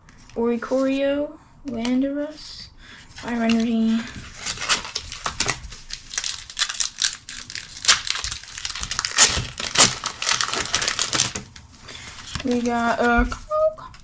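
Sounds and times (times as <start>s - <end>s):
foil wrapper crinkling: 3.3s - 13.5s.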